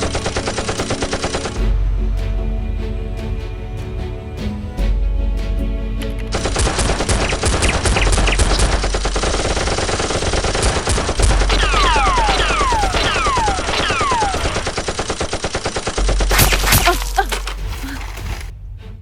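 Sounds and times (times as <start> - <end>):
automatic gunfire sound effects: 6.4 - 17.1.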